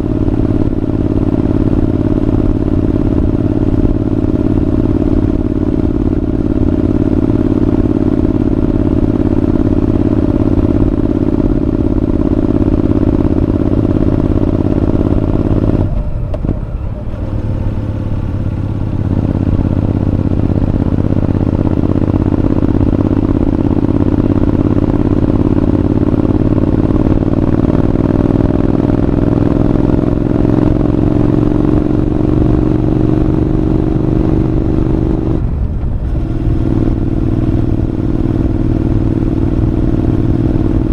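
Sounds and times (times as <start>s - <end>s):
motorcycle engine under way: 0.0s - 40.9s.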